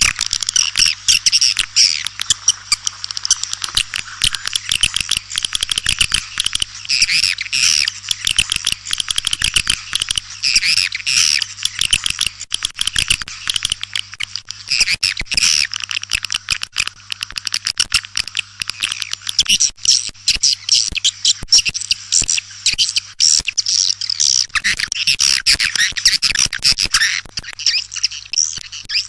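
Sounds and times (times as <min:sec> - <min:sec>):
swiftlets twittering: 0:00.0 - 0:12.3
warbling bird calls: 0:00.0 - 0:12.4.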